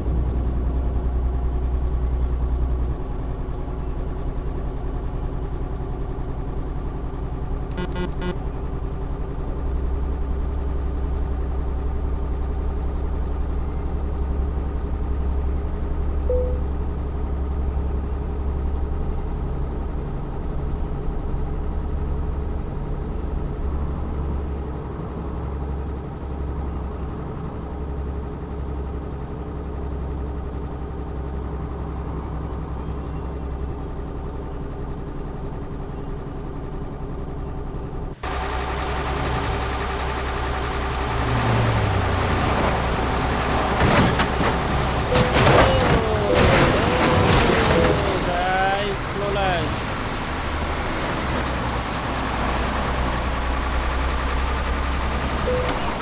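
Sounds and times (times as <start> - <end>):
diesel truck engine rumbling: 0.0 - 56.0.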